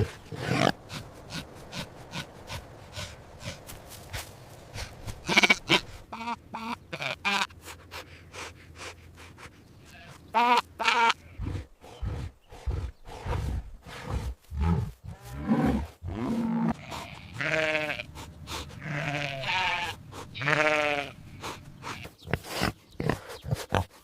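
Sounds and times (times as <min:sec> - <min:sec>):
sheep bleating: 0:05.2 - 0:07.5, 0:09.9 - 0:11.3, 0:16.6 - 0:18.1, 0:18.8 - 0:21.2.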